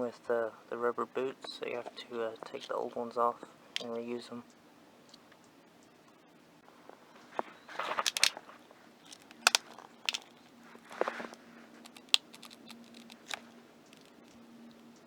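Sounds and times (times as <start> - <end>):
sharp clicks of rubber boots: 7.4 - 14.4.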